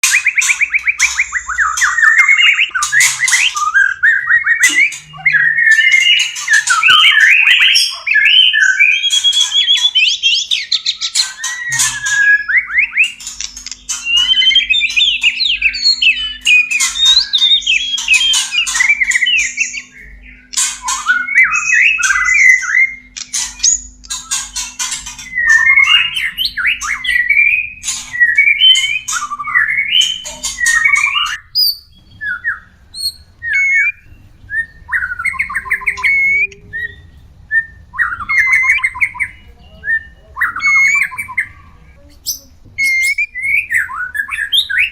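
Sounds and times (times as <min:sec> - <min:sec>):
songbird whistling and trilling: 0:00.0 - 0:44.9
bird sharp clicks: 0:11.2 - 0:19.6, 0:23.1 - 0:31.4.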